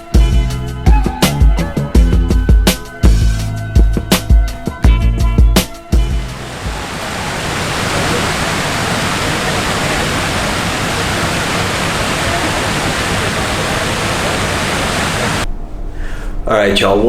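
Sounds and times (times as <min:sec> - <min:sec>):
music track with drums: 0:00.0 - 0:06.3
rushing falling water: 0:06.2 - 0:15.5.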